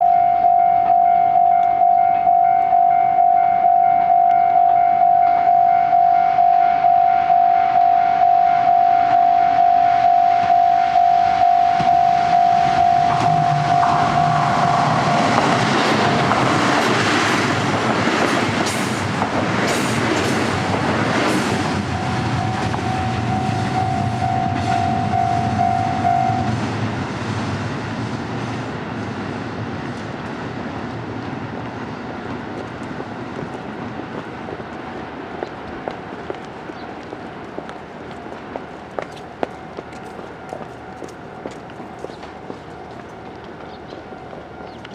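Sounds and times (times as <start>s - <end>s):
level crossing alarm bell: 0.0s - 15.1s, 21.9s - 26.4s
diesel train engine hum: 0.0s - 44.9s
train wheels knocking on rail joints: 12.6s - 26.1s.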